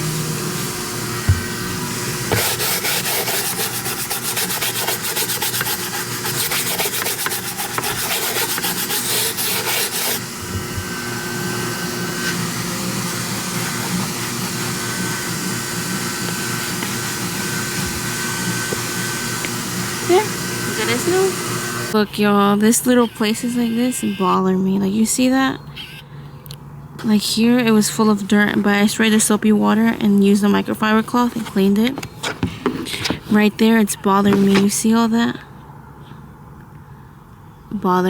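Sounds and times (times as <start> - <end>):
scrubbing on car surface: 2.3 - 10.2.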